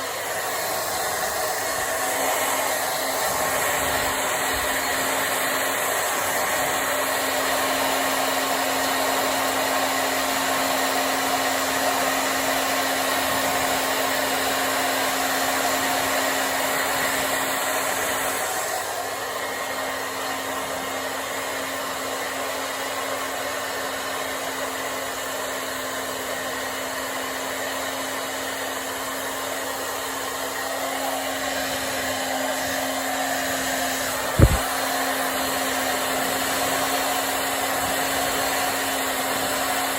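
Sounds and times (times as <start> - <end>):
hair dryer blowing: 0.0 - 39.9
hair dryer click: 29.5 - 35.7.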